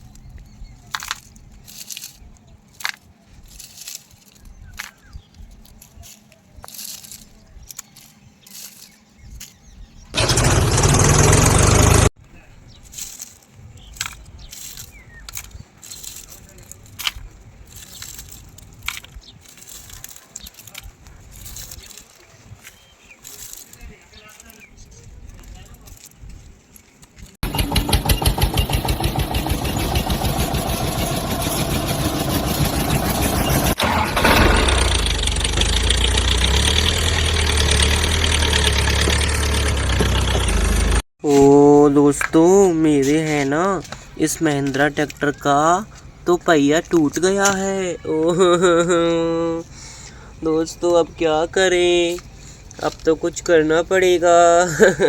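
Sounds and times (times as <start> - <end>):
rustles and clicks: 0.0 - 49.7
tractor engine: 10.1 - 12.2, 27.4 - 46.4.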